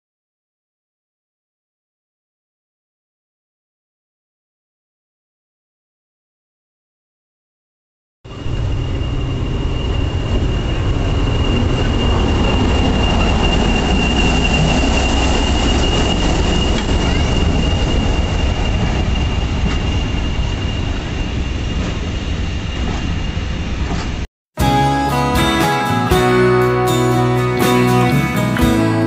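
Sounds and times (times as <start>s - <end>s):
high-pitched wheel squeal: 8.3s - 24.1s
diesel locomotive engine rumble: 8.3s - 29.0s.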